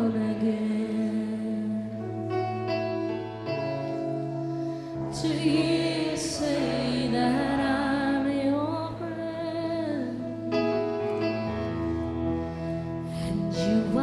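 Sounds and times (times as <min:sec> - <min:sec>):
woman singing: 0:00.0 - 0:02.6, 0:05.1 - 0:11.4, 0:13.1 - 0:14.0
held keyboard chords: 0:00.0 - 0:14.0.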